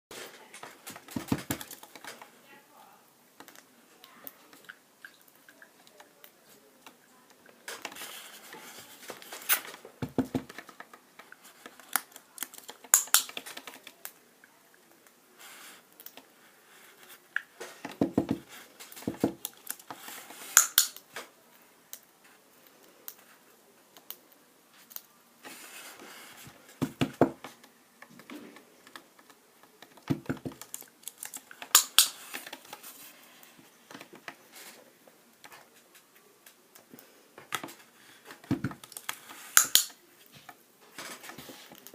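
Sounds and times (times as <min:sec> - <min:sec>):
clicks and taps of small objects: 0:00.5 - 0:02.3, 0:03.4 - 0:07.0, 0:09.1 - 0:14.2, 0:17.4 - 0:21.3, 0:26.4 - 0:32.9, 0:35.3 - 0:41.9.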